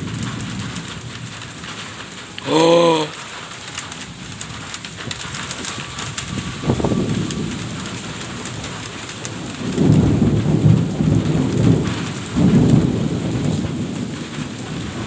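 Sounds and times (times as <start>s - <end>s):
heavy rainfall: 0.0s - 15.0s
thunder rumbling: 4.1s - 15.0s.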